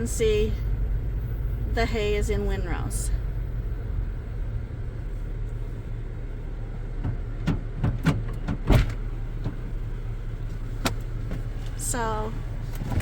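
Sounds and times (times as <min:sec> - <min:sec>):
vehicle engine droning: 0:00.0 - 0:13.0
sharp knocks and rattles: 0:07.0 - 0:09.6.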